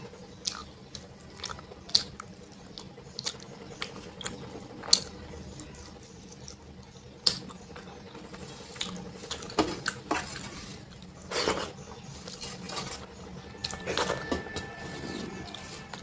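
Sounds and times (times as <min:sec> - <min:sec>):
dinner plate clinking: 0:11.3 - 0:16.0.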